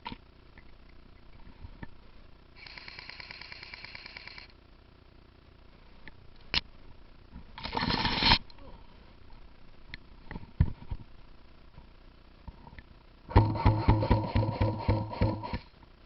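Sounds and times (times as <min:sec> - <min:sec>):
full-auto airsoft burst: 0:02.6 - 0:04.5, 0:13.3 - 0:15.7
airsoft gun shots: 0:13.3 - 0:15.7.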